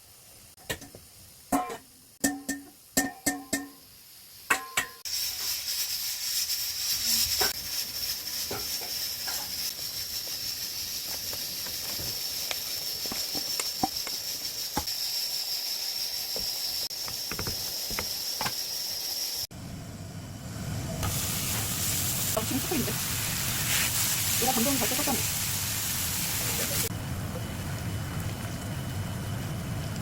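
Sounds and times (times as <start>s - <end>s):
food sizzling in frying pan: 0.0s - 19.5s, 20.4s - 30.0s
oil popping and crackling: 5.0s - 14.9s, 16.4s - 18.6s.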